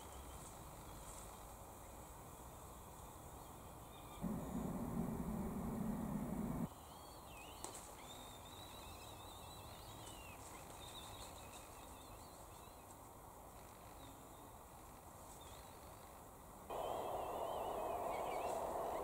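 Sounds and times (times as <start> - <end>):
background hiss: 0.0 - 19.0
thin wavering bird song: 3.0 - 12.8, 16.7 - 19.0.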